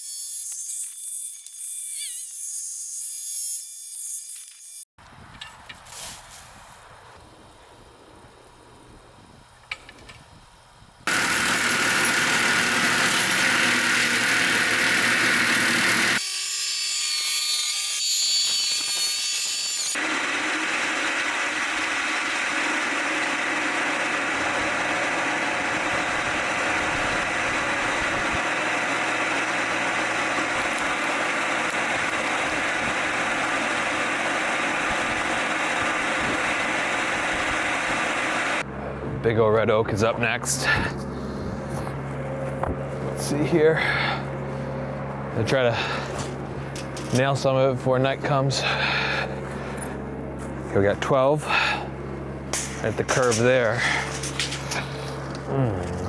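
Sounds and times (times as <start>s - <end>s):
machinery running loudly: 11.1s - 16.2s, 20.0s - 39.0s.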